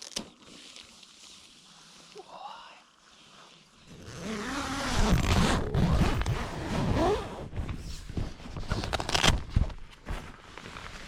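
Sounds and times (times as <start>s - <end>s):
tent zip opening: 3.9s - 11.0s.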